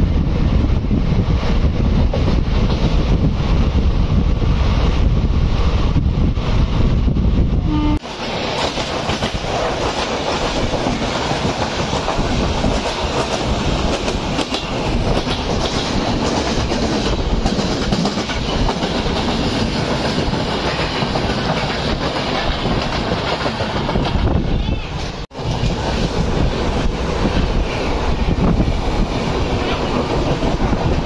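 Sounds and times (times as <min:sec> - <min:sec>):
wind buffeting microphone: 0:00.0 - 0:31.0
train wheels clattering over rails: 0:08.0 - 0:31.0.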